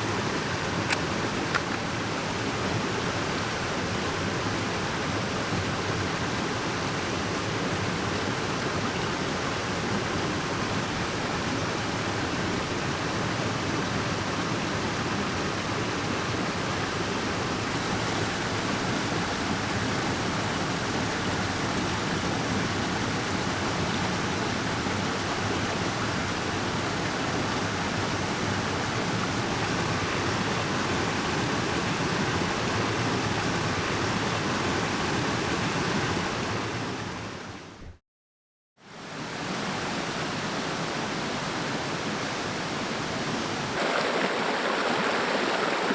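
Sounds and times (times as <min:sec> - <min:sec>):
stream water rushing: 0:00.0 - 0:37.8, 0:38.8 - 0:45.9.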